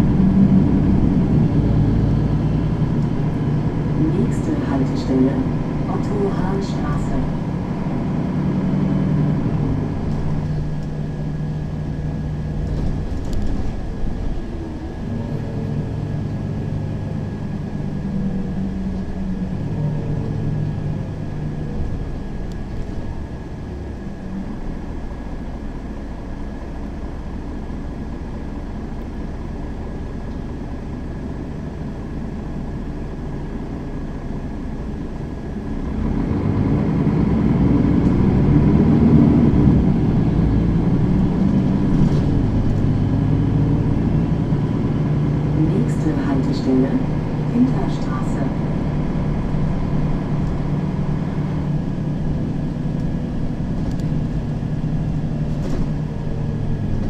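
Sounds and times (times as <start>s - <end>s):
bus engine running: 0.0s - 57.0s.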